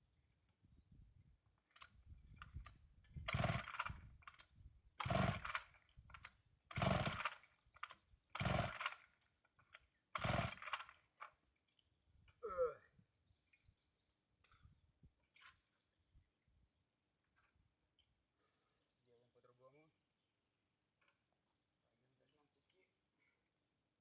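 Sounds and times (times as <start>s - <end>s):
starter rope pulls: 2.4s - 9.2s, 10.2s - 11.4s
chainsaw engine turning over: 3.2s - 4.4s, 5.0s - 9.1s, 10.2s - 11.1s.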